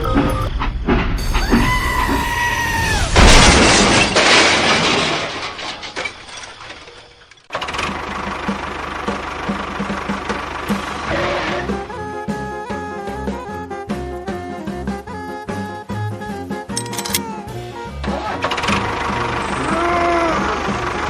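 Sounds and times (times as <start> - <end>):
loud crash with shattering: 2.8 - 7.5.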